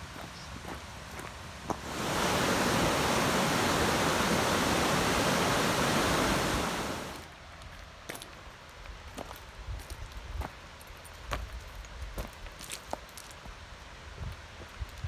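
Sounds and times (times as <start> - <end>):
rushing water: 1.7 - 7.3.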